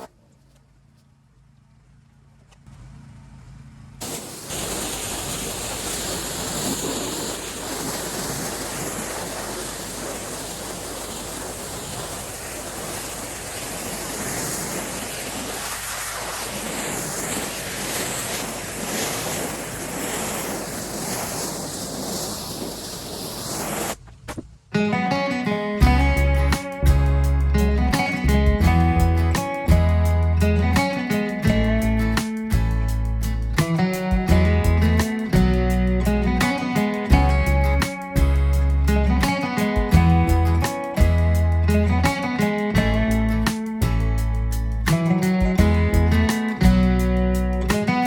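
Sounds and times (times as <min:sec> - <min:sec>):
pressure washer water jet hissing: 0:04.0 - 0:24.0.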